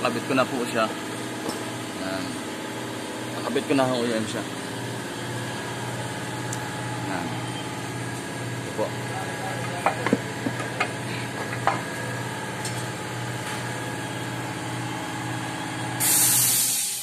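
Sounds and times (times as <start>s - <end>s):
mechanical hum with low drone: 0.0s - 17.0s
loud hiss of air: 16.0s - 17.0s.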